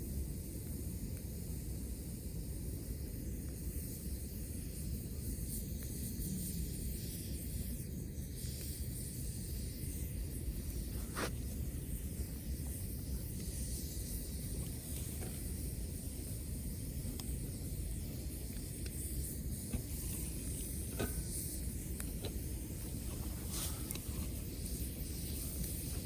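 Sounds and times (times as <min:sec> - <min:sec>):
campfire burning: 0:00.0 - 0:26.0
sharp crack of fire: 0:00.0 - 0:26.0.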